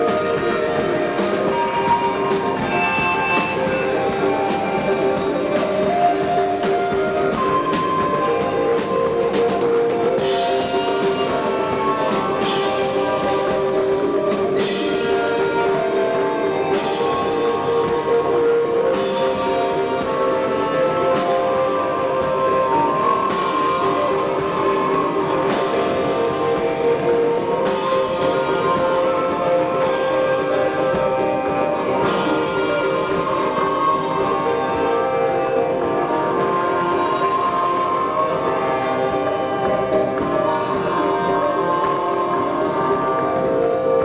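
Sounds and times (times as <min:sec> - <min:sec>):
drums: 0:00.0 - 0:44.0
live instrumental band music: 0:00.0 - 0:44.0.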